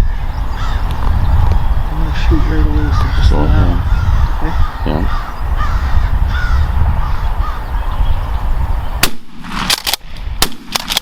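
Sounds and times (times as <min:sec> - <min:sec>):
faint bird calls: 0:00.0 - 0:09.0
sharp cracks and knocks: 0:09.0 - 0:11.0
shotgun shot: 0:09.0 - 0:11.0.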